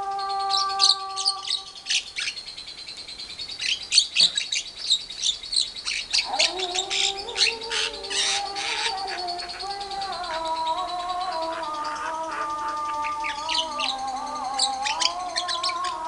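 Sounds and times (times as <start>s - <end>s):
caged birds chattering: 0.0s - 16.0s
low steady humming tone: 4.8s - 16.0s.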